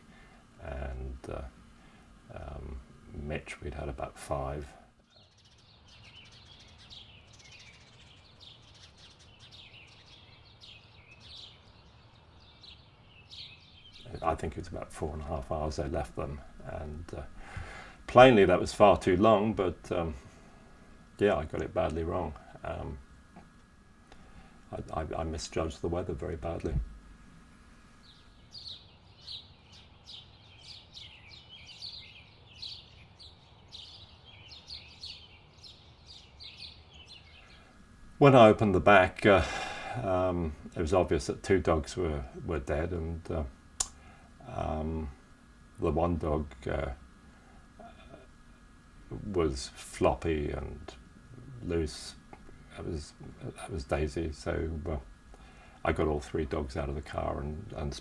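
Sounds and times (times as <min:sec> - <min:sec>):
small birds chirping: 0:00.0 - 0:58.0
low steady rumble: 0:13.9 - 0:28.5, 0:37.4 - 0:58.0.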